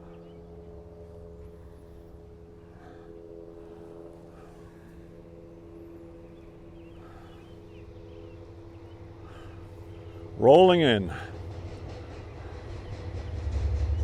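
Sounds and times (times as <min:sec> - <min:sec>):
birds chirping: 0:00.0 - 0:14.0
diesel locomotive droning: 0:00.0 - 0:14.0.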